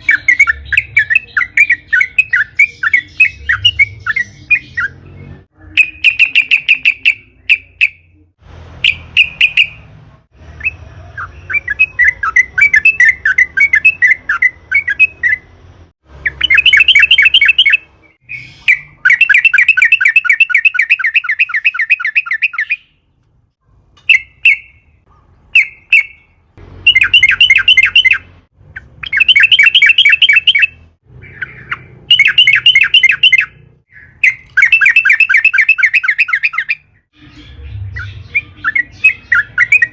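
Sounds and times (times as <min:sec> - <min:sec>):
bird singing chattering rolls: 0:00.0 - 0:08.2, 0:16.2 - 0:23.0, 0:25.6 - 0:39.9.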